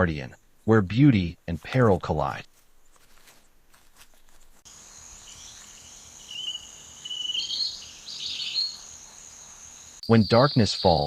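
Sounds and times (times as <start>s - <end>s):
high insect trill: 4.7s - 10.9s
bird chirps: 4.7s - 11.0s.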